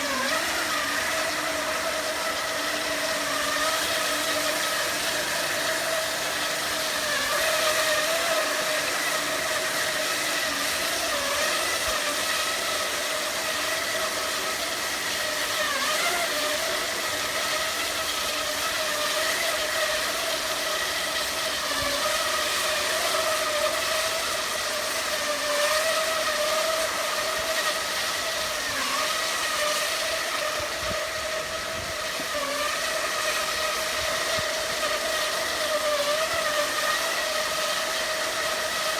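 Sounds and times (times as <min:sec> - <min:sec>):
wire saw whine: 0:00.0 - 0:38.9.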